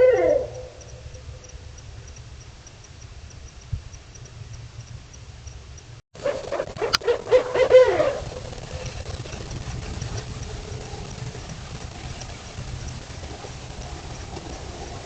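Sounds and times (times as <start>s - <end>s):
yelping animal calls: 0.0s - 1.5s, 6.2s - 9.4s
low hiss and rumble: 0.0s - 15.0s
faint high ticks: 0.5s - 6.0s, 8.4s - 15.0s.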